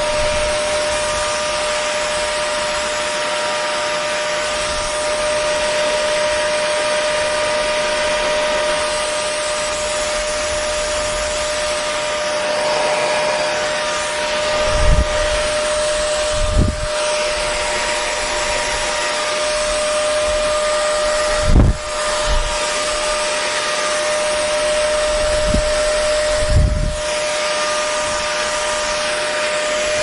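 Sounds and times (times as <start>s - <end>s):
hair dryer running: 0.0s - 30.0s.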